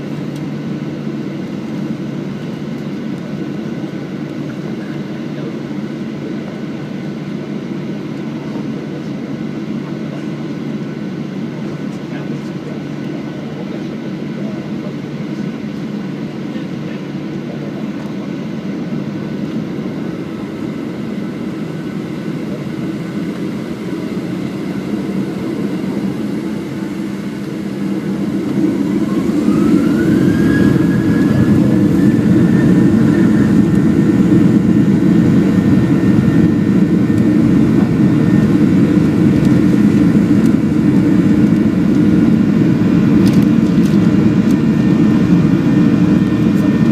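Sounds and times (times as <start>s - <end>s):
jet engine whine rising: 0.0s - 46.9s
jet engines running: 0.0s - 46.9s.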